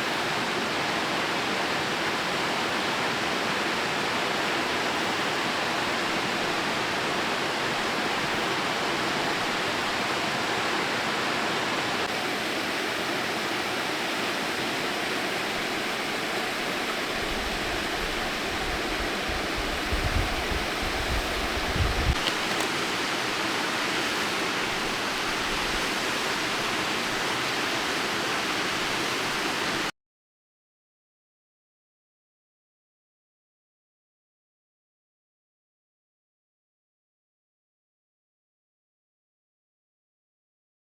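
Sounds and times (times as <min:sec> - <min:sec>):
waterfall roaring: 0:00.0 - 0:29.9.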